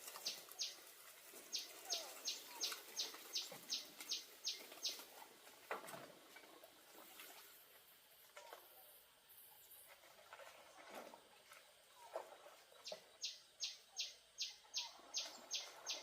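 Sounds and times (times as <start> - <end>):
bird chirping: 0.1 - 0.8, 1.5 - 5.0, 12.7 - 16.0.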